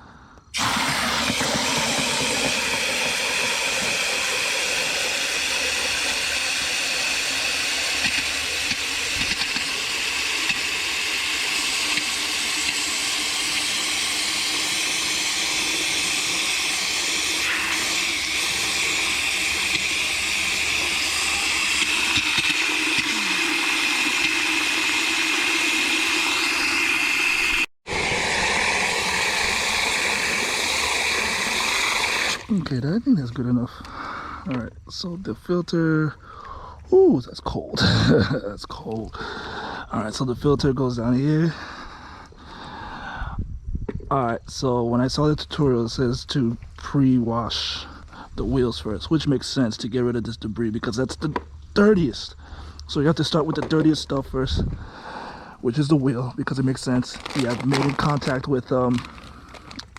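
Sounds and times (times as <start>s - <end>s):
hose water pouring into bucket: 0.5s - 33.0s, 55.7s - 59.9s.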